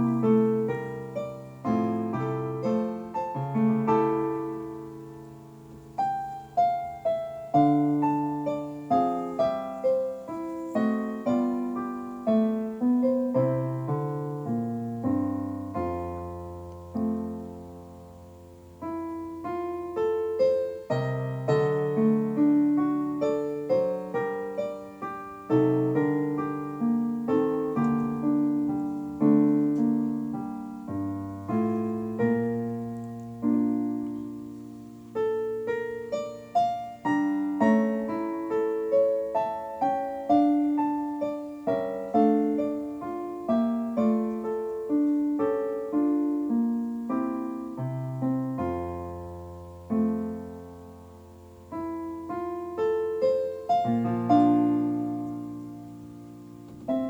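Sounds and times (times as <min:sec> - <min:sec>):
gentle piano music: 0:00.0 - 0:57.0.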